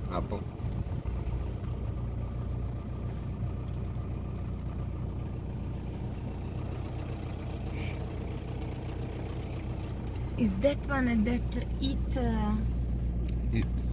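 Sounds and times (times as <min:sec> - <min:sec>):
vehicle engine idling: 0:00.0 - 0:13.9.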